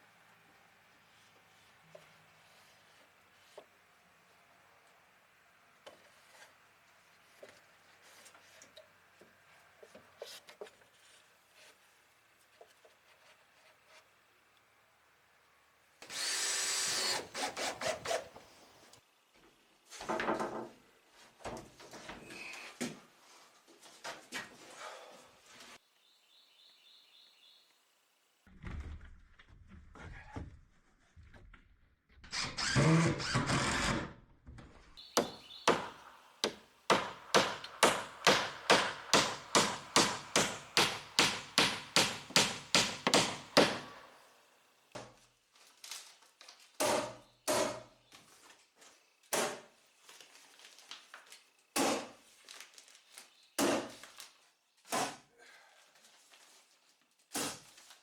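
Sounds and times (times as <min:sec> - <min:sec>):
scraping on wood: 0:16.9 - 0:18.8, 0:35.0 - 0:44.1
knocks on wood: 0:35.2 - 0:44.1
fast sharp strokes: 0:35.2 - 0:44.2.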